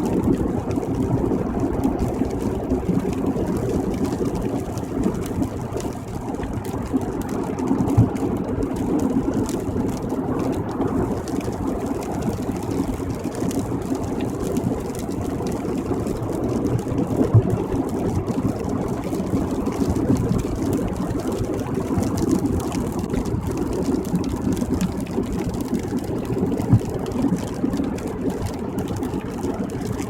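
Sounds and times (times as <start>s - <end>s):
low rumble: 0.0s - 12.6s
tyres on wet road: 0.0s - 30.0s.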